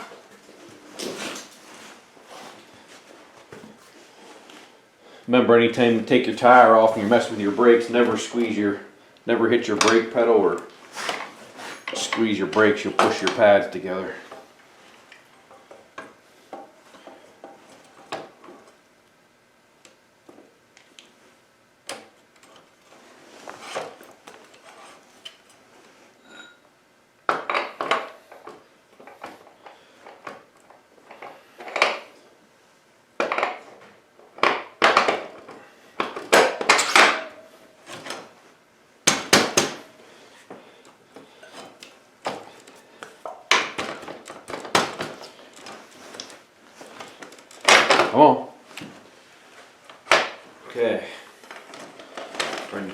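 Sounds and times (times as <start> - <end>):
metal tools clinking and clanking: 26.2 - 26.6.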